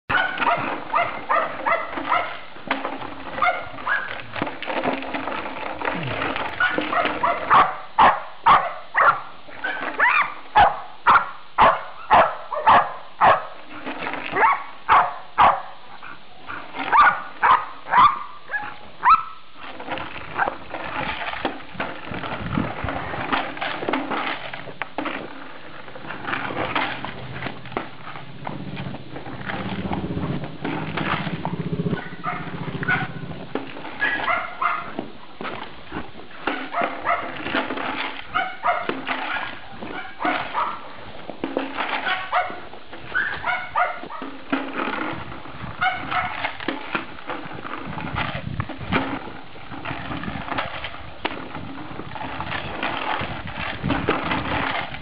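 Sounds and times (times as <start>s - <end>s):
dog barking: 0.1s - 2.4s, 3.4s - 4.1s, 6.6s - 13.5s, 14.4s - 15.8s, 16.9s - 19.4s, 32.0s - 33.2s, 34.0s - 34.9s, 36.7s - 37.3s, 38.3s - 38.9s, 39.9s - 40.8s, 42.1s - 42.6s, 43.2s - 44.2s.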